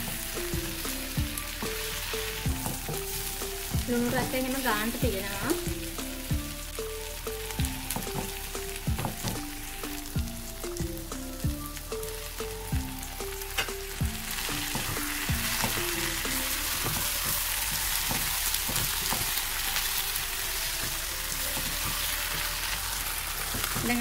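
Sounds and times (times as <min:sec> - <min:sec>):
food sizzling in a pan: 0:00.0 - 0:24.0
wooden spatula knocking a pan: 0:02.4 - 0:04.4, 0:07.8 - 0:10.0, 0:13.6 - 0:19.4, 0:20.8 - 0:22.6, 0:23.4 - 0:24.0.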